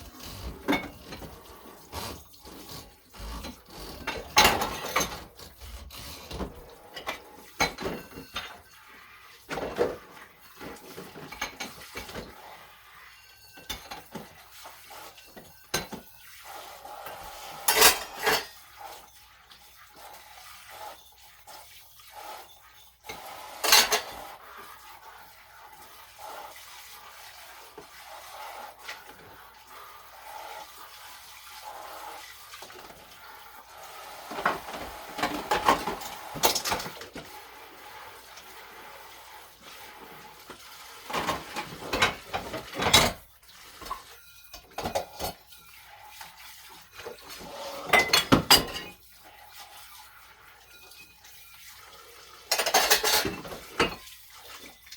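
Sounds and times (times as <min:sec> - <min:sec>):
dishes and cutlery clattering: 0:00.0 - 0:08.8, 0:09.4 - 0:12.4, 0:13.2 - 0:16.2, 0:17.5 - 0:18.6, 0:22.3 - 0:24.2, 0:34.3 - 0:37.3, 0:41.1 - 0:45.8, 0:46.8 - 0:49.0, 0:50.6 - 0:51.4, 0:52.4 - 0:54.9
tap water running: 0:00.0 - 0:54.9.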